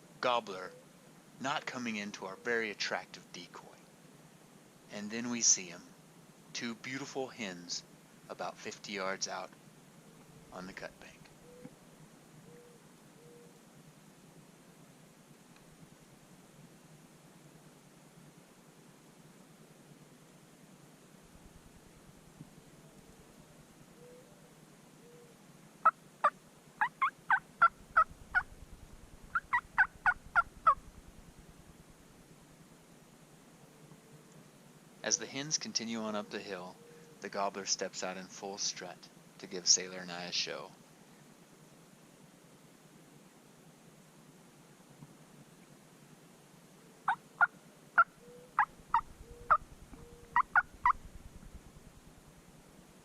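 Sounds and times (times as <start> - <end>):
turkey yelping: 25.8 - 28.5, 29.3 - 30.8, 47.1 - 51.0
low rapid pulsing: 27.5 - 32.3, 48.7 - 52.4.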